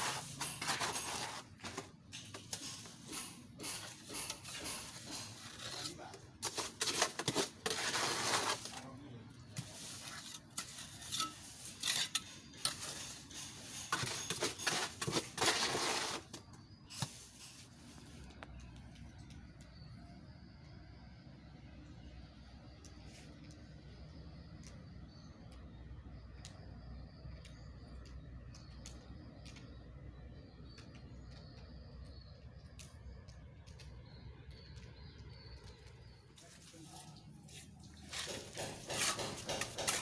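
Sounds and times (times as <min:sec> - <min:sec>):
metal hand tool scraping: 0:00.0 - 0:08.8, 0:09.6 - 0:16.4.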